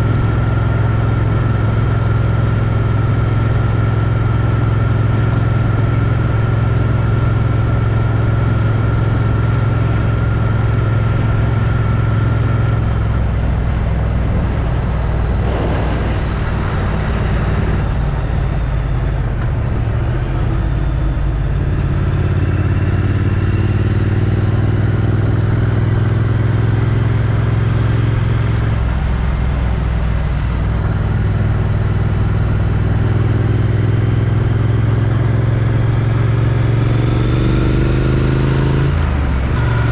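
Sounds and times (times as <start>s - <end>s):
motorcycle engine: 0.0s - 39.9s
brief rush of noise: 15.4s - 18.2s.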